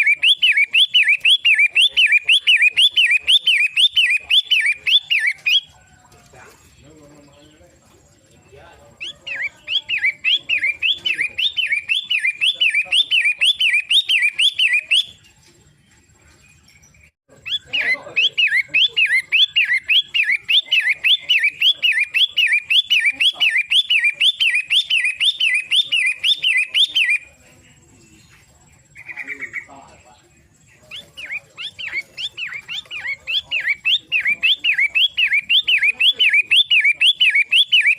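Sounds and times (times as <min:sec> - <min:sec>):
bird calling repeated notes: 0:00.0 - 0:05.7, 0:09.0 - 0:15.3, 0:17.4 - 0:27.4, 0:28.9 - 0:29.9, 0:30.8 - 0:37.9.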